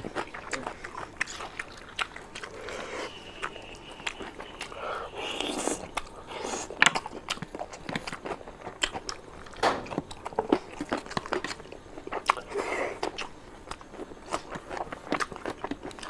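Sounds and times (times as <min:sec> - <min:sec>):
person chewing open-mouthed: 0:00.0 - 0:16.0.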